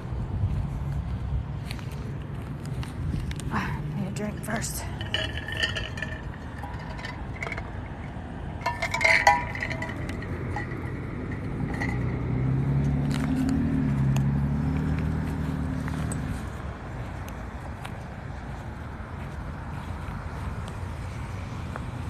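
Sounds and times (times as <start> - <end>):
sharp clinks and scrapes: 4.1 - 13.7
vehicle engine droning past: 4.9 - 17.0.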